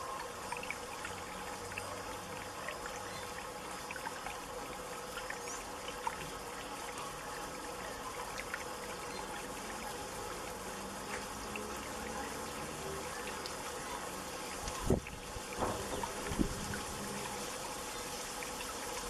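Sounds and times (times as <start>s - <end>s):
fountain water trickling: 0.0s - 19.0s.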